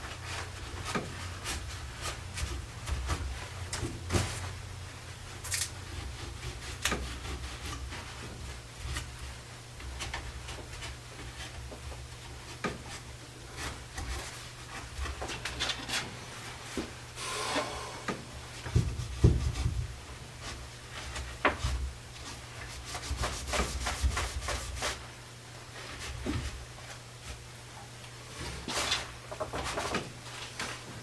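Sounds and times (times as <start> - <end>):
steady low hum: 16.2 - 23.0.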